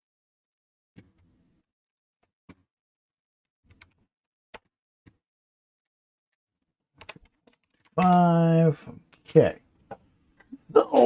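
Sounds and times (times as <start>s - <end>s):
keyboard and mouse clicks: 7.0s - 8.2s.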